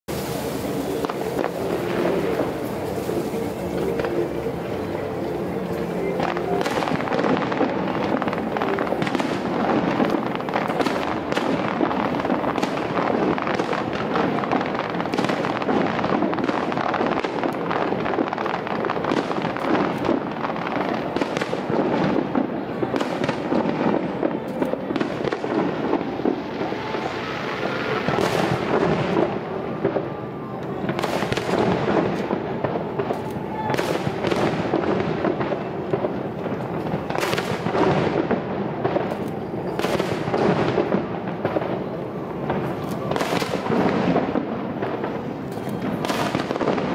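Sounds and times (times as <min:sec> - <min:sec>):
fireworks bangs and crackling: 0:00.1 - 0:46.9.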